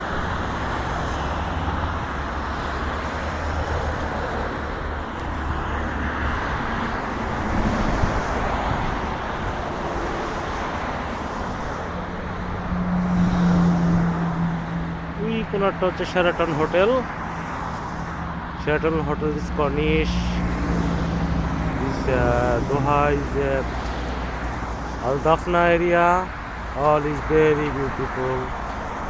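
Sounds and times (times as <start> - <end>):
passing cars: 0.0 - 29.0
vehicle engine hum: 0.0 - 29.0.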